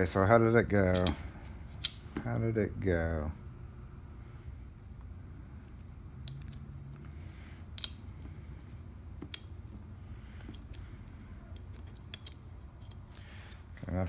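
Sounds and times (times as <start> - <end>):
small metal parts clicking: 0.9 - 1.2, 6.2 - 6.6, 7.7 - 8.3, 11.5 - 13.7.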